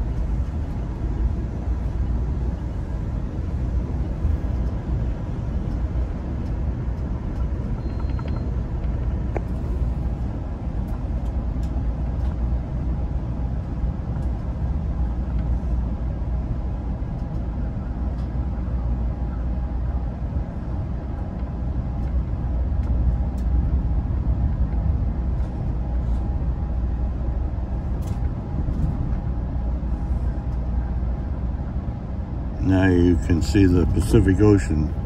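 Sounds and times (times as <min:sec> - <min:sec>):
train car rumble: 0:00.0 - 0:35.0
faint whine: 0:07.3 - 0:10.4, 0:27.0 - 0:35.0.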